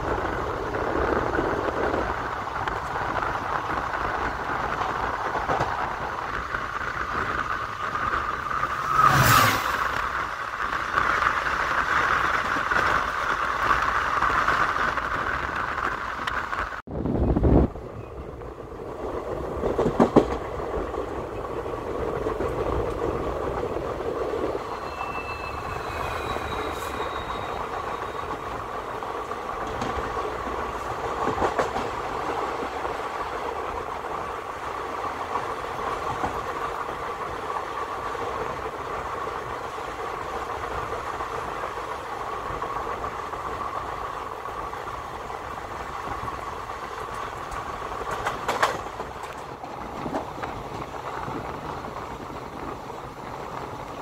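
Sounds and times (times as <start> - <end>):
train wheels rumbling on rails: 0.0 - 54.0
wheels knocking on rail joints: 18.3 - 24.5, 42.3 - 54.0
faint high squeals: 24.5 - 28.6.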